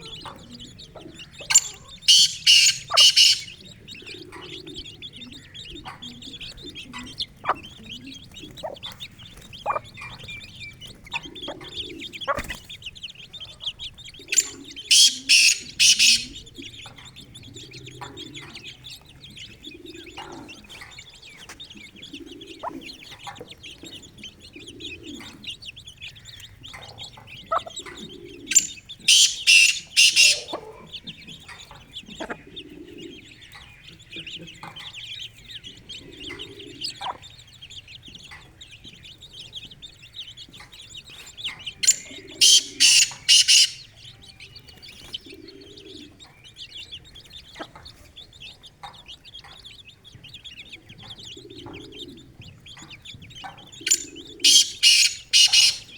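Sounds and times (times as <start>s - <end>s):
chicks peeping: 0.0s - 55.9s
harsh bird calls: 0.0s - 55.9s
hen clucking: 0.0s - 55.9s.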